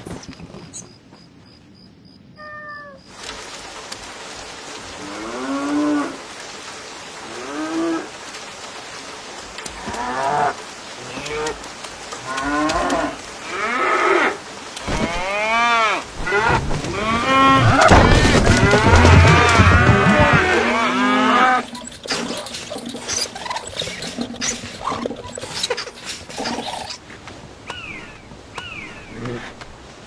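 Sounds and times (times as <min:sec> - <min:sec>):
animal calling rising and falling: 0:15.0 - 0:27.0.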